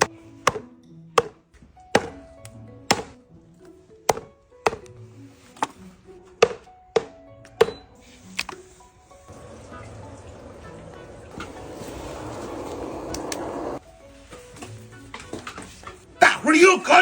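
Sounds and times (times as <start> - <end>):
cleaver chopping on a board: 0.0 - 1.4, 2.0 - 2.2, 2.9 - 3.2, 4.1 - 4.9, 6.4 - 7.8
background music: 0.0 - 17.0.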